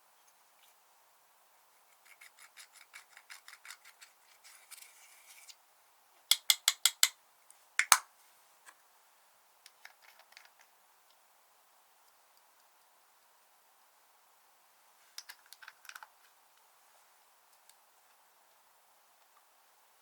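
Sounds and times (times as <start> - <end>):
slime popping loudly: 7.8 - 8.0.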